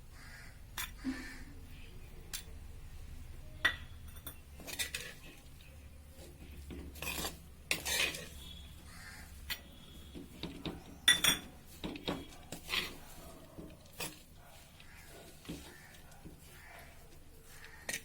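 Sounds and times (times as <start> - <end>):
metal spoon scraping a pot: 3.6 - 18.0.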